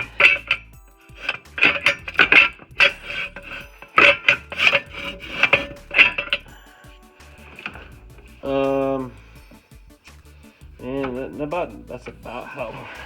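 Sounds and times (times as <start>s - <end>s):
metallic clanks and scrapes: 0.0s - 13.0s.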